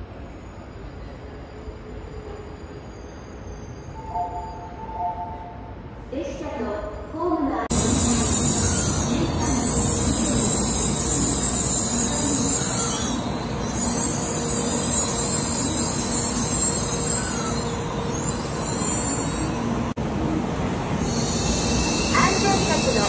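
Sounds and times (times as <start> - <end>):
train wheels rumbling on rail: 7.7 - 23.0.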